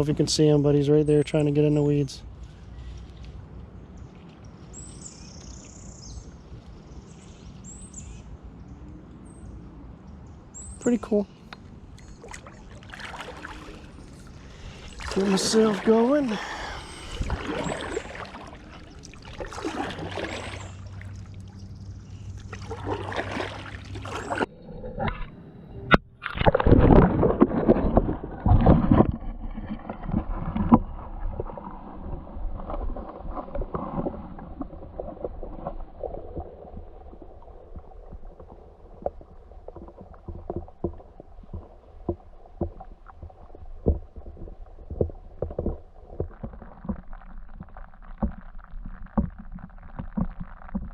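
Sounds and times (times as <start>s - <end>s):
paddle splashing in water: 11.9s - 25.2s, 26.2s - 50.9s.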